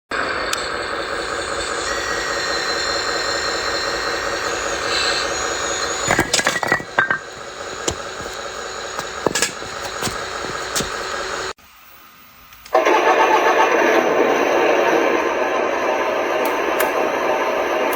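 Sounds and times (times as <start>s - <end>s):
small motor whining: 0.7s - 11.5s
fast rattle: 3.2s - 11.5s
sharp clicks and knocks: 6.1s - 11.1s.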